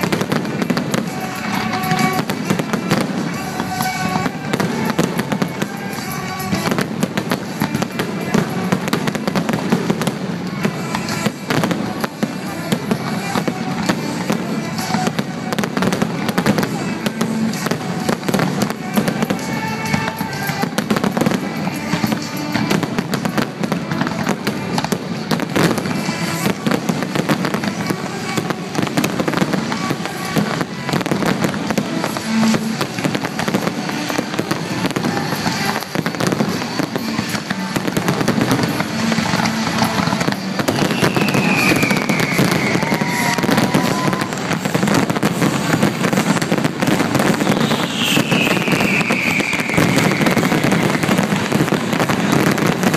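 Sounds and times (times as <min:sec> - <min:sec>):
fireworks crackling and banging: 0:00.0 - 0:52.9
falling firework whistle: 0:30.1 - 0:52.9.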